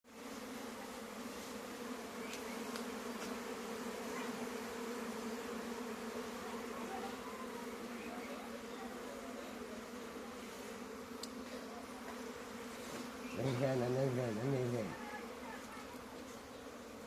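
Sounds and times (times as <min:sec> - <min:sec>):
honeybees buzzing: 0:00.1 - 0:17.0
faint ticks: 0:02.3 - 0:03.3, 0:11.2 - 0:11.4.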